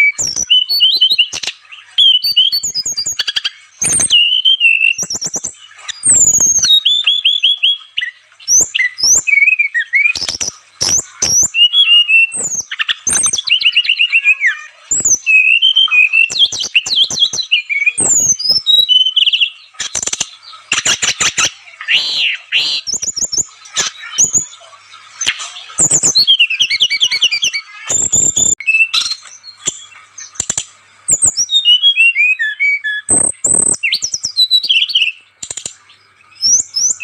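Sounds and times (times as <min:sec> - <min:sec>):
bird singing: 0:00.0 - 0:37.0.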